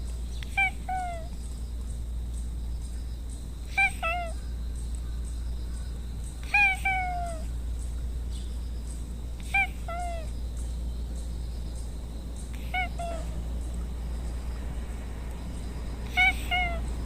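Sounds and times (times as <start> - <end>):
cat meowing: 0.4 - 1.3, 3.7 - 4.4, 6.4 - 7.5, 9.4 - 10.3, 12.6 - 13.4, 16.0 - 16.8.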